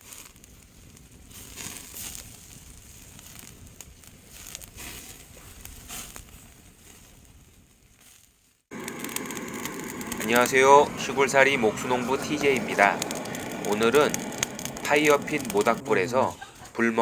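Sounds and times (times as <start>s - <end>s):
wood fire crackling: 0.0s - 17.0s
sharp pops: 8.7s - 16.4s.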